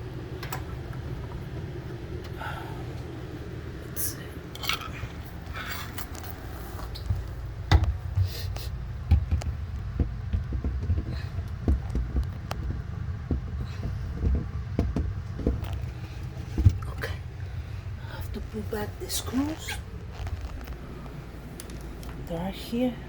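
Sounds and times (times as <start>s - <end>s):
knocks and clicks of shelves: 7.0s - 8.4s, 9.0s - 17.2s.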